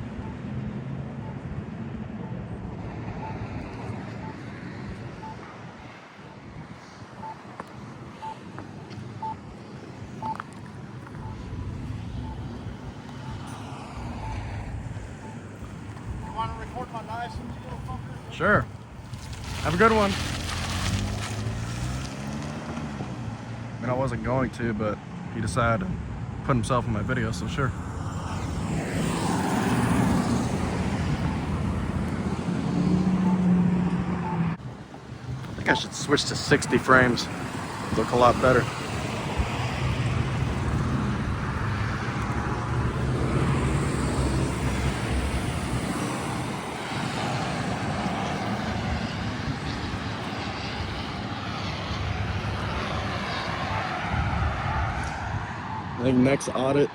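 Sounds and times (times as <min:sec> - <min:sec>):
vehicle engine rumble: 0:00.0 - 0:56.9
short electronic beep: 0:09.2 - 0:09.4, 0:11.2 - 0:12.6, 0:14.2 - 0:14.6
vehicle driving past: 0:19.1 - 0:23.8, 0:27.3 - 0:34.6.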